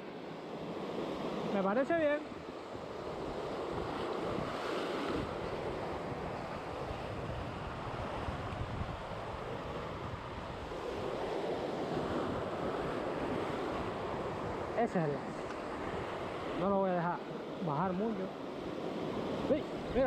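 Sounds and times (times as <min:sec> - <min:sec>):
sea surf washing: 0:00.0 - 0:20.0
wind buffeting microphone: 0:02.8 - 0:11.3.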